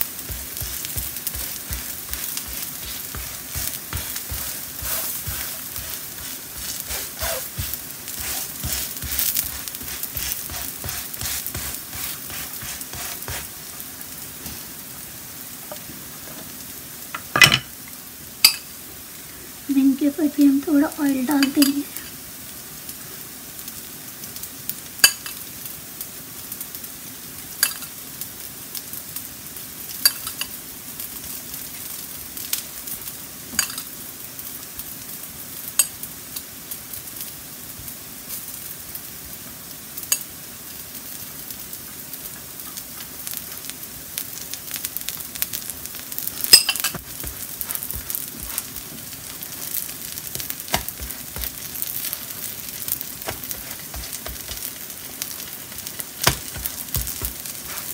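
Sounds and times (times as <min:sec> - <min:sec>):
utensil tapping a griddle: 0:00.0 - 0:13.5, 0:46.4 - 0:49.0, 0:49.7 - 0:52.1, 0:53.0 - 0:54.8, 0:56.2 - 0:57.9
pancakes sizzling in oil: 0:00.0 - 0:57.9.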